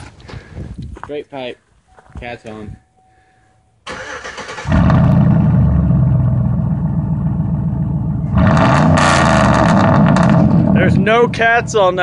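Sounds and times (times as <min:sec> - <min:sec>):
engine cranking and starting: 0:03.9 - 0:05.3
loud engine running: 0:04.8 - 0:12.0.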